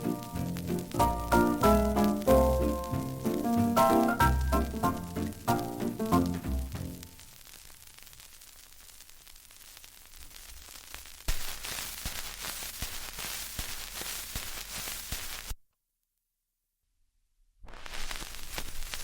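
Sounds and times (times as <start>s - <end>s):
crackling hiss with sharp pops: 0.0s - 15.6s, 17.6s - 19.0s.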